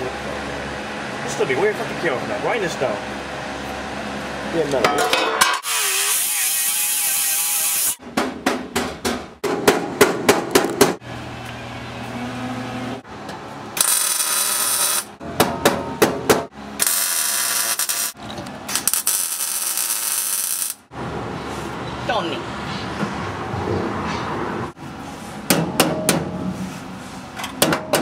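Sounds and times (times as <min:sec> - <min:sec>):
tool strikes on metal: 0:15.2 - 0:16.5, 0:25.5 - 0:26.5, 0:27.5 - 0:28.0.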